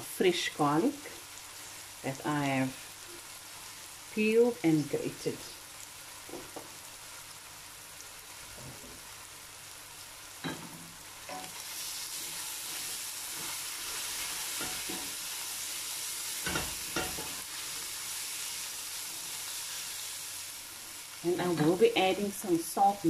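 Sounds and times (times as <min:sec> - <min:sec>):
vegetables sizzling in oil: 0:00.0 - 0:23.0.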